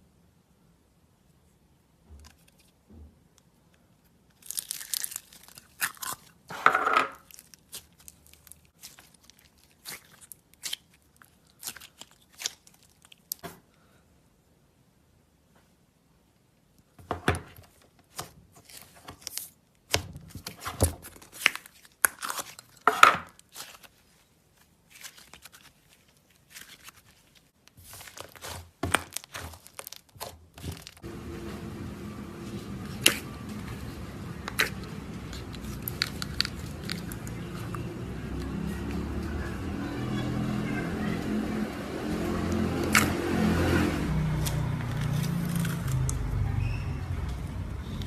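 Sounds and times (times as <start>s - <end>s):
slime crackling and popping: 4.3s - 6.4s, 7.2s - 13.4s, 27.8s - 31.0s, 34.4s - 37.9s, 42.9s - 43.1s
steady low hum: 31.0s - 38.7s.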